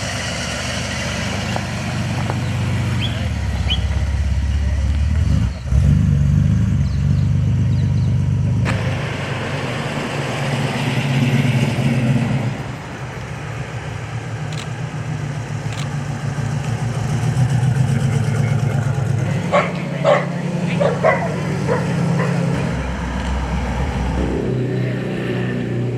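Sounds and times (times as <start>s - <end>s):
car engine low rumble: 0.0s - 25.9s
broad rush of noise: 8.7s - 15.9s.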